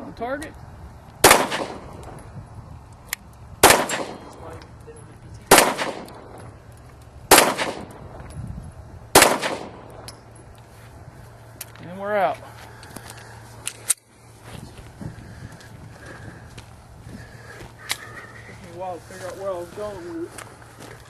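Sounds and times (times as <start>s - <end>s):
pistol shots with echo: 1.2s - 2.1s, 3.6s - 4.4s, 5.5s - 6.4s, 7.3s - 8.1s, 9.1s - 10.1s.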